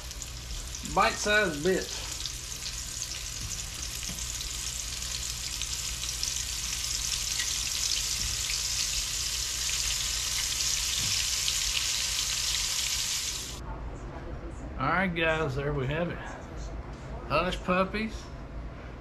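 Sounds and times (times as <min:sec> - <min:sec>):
fish frying in hot oil: 0:00.0 - 0:13.6.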